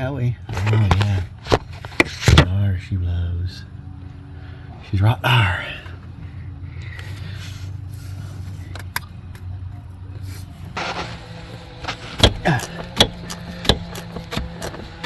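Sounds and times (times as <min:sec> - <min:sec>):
steady low hum: 0:00.0 - 0:15.0
sharp knocks and clicks of tools: 0:12.0 - 0:15.0.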